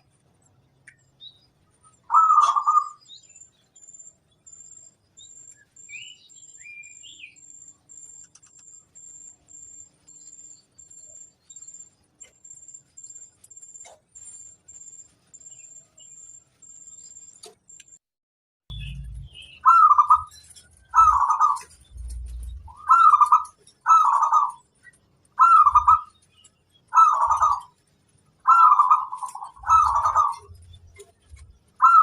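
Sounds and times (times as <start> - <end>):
dove cooing: 2.1 - 3.0, 19.6 - 20.3, 20.9 - 24.6, 25.4 - 26.1, 27.0 - 27.7, 28.5 - 30.6, 31.8 - 32.0.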